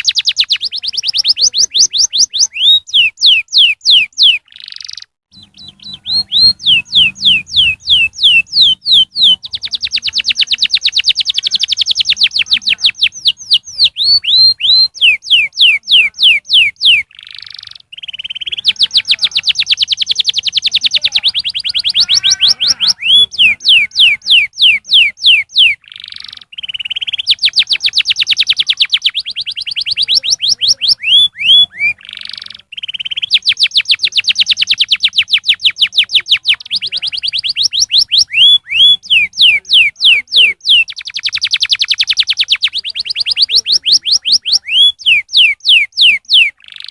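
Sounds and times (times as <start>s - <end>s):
canary singing: 0.0s - 46.9s.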